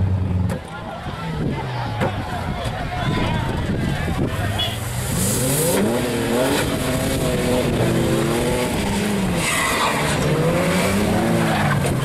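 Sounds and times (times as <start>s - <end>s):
tyre skids: 1.8s - 12.0s
car engine revving: 3.9s - 12.0s.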